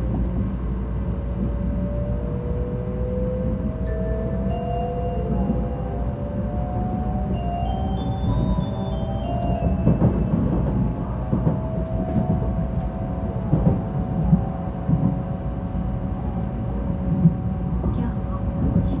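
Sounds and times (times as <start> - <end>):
train running gear rumble and whine: 0.0 - 19.0
descending chime melody: 3.8 - 13.3.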